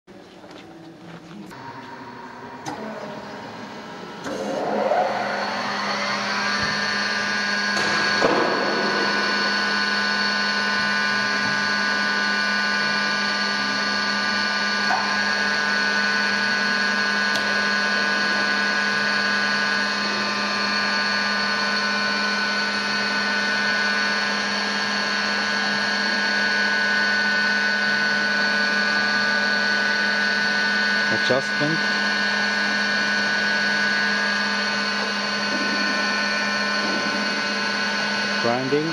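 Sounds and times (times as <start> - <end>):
grinder steady hum and tones: 0.1 - 38.9
grinder motor whine rising: 0.4 - 38.9.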